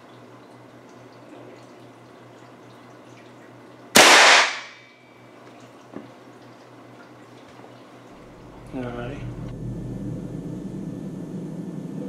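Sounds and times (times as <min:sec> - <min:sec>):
air rifle shot crack: 0:04.0 - 0:04.8.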